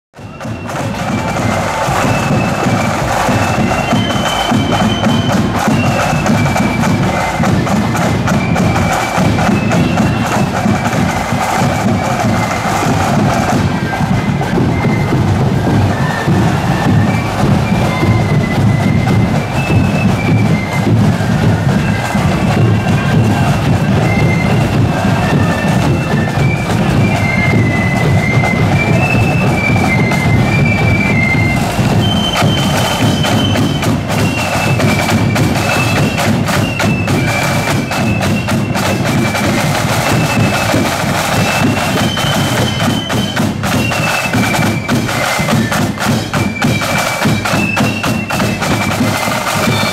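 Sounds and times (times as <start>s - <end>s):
flutes playing melody: 0.2s - 49.9s
snare and bass drums marching: 0.2s - 49.9s.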